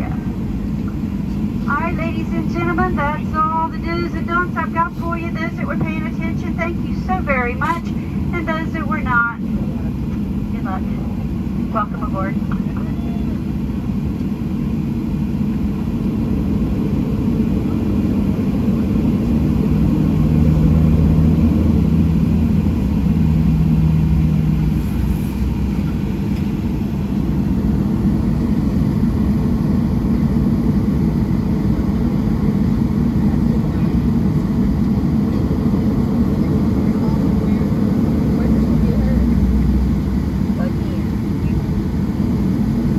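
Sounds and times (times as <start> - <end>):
low hum: 0.0 - 17.2
airliner cabin engine rumble: 0.0 - 42.9.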